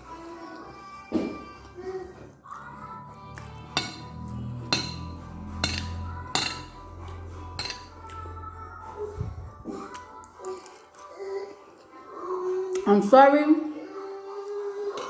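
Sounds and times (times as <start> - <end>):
background music: 0.0 - 15.0
cutlery clinking against a plate: 3.7 - 6.8, 7.6 - 8.2.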